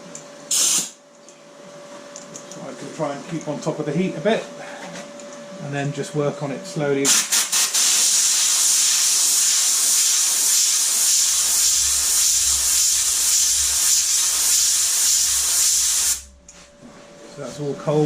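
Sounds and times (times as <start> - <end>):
compressed air hissing: 0.5 - 1.0, 7.1 - 16.3.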